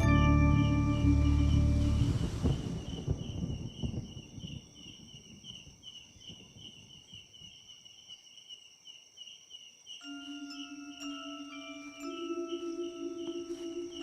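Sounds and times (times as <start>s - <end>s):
insects chirping: 0.0s - 14.0s
high-pitched insect whine: 9.6s - 14.0s.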